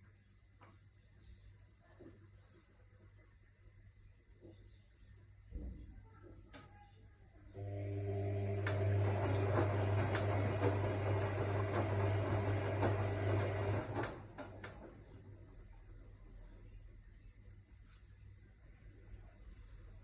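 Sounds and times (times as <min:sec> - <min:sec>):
washing machine motor hum: 0:07.5 - 0:16.2.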